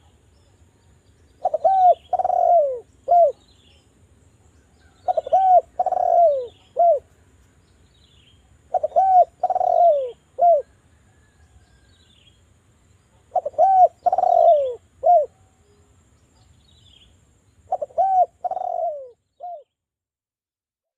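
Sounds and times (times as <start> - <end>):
small birds chirping: 0.0 - 10.8, 11.4 - 19.8
dove cooing: 1.4 - 3.5, 4.9 - 7.1, 8.6 - 11.4, 13.2 - 15.4, 17.7 - 19.7.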